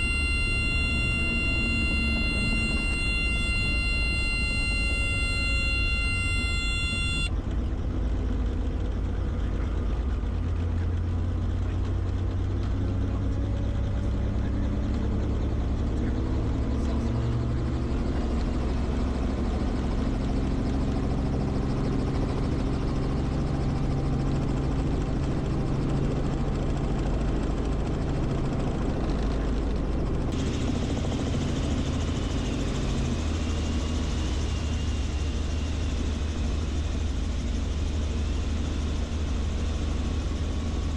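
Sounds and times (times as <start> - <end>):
high multi-pitch tone: 0.0 - 7.3
helicopter engine and rotor: 0.0 - 40.9.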